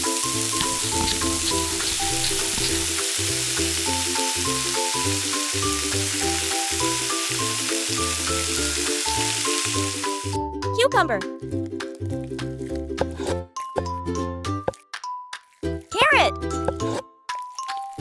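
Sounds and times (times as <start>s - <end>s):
seafood sizzling in oil: 0.0s - 10.4s
background music with bass line: 0.0s - 14.8s.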